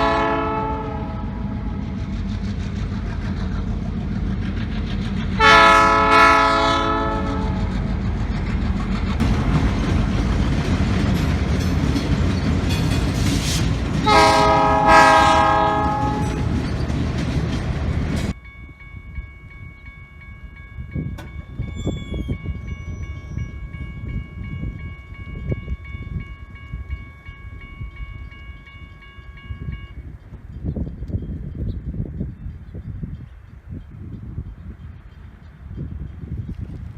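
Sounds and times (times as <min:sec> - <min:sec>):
train horn blasts: 0:00.0 - 0:02.0, 0:05.3 - 0:07.7, 0:14.0 - 0:16.5
train rumble and wheel clatter: 0:00.0 - 0:36.9.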